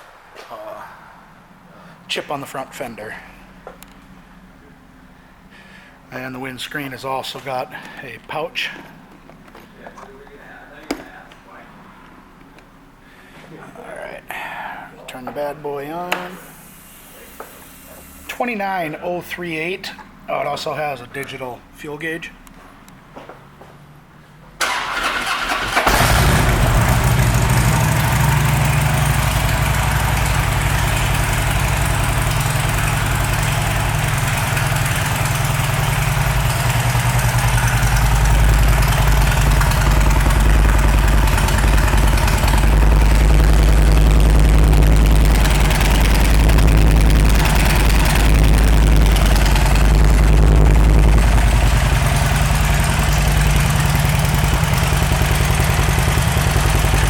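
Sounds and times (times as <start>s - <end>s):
motorcycle electric starter cranking: 24.6s - 57.0s
motorcycle engine idling: 25.4s - 57.0s.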